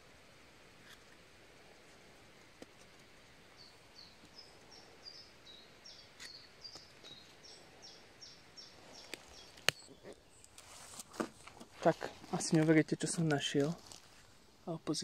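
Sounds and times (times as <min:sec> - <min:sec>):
songbird chirping: 0:03.1 - 0:15.0.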